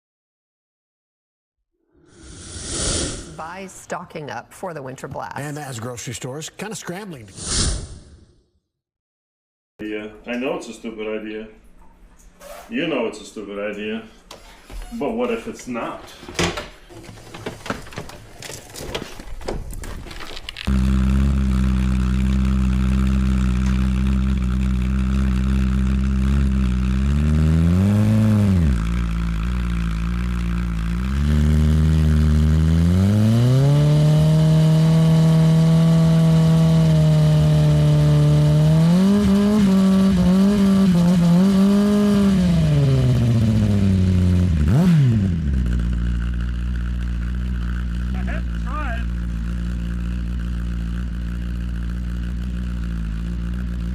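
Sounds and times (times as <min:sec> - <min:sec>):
engine clatter: 0:17.0 - 0:53.9
motorcycle engine revving: 0:20.2 - 0:53.9.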